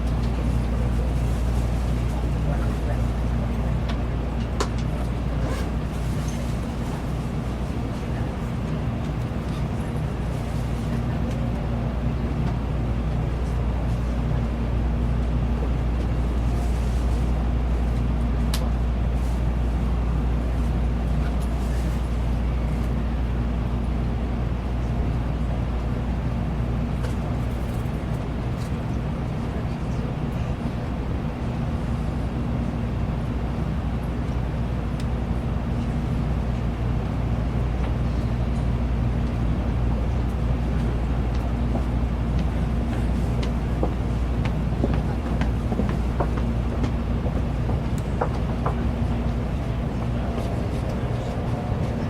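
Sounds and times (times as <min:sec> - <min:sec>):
train cabin rumble and hum: 0:00.0 - 0:52.0.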